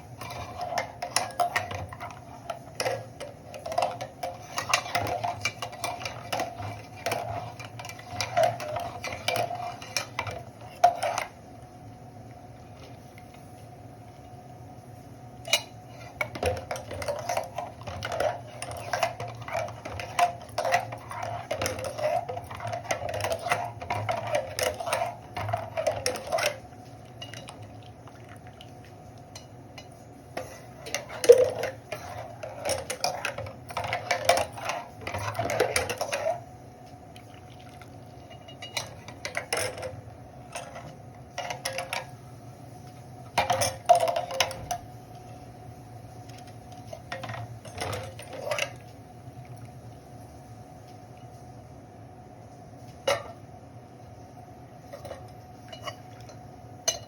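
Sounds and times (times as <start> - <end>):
steady hum: 0.0 - 57.0
metal spoon scraping a pan: 0.2 - 11.4, 15.5 - 26.6, 29.4 - 36.4.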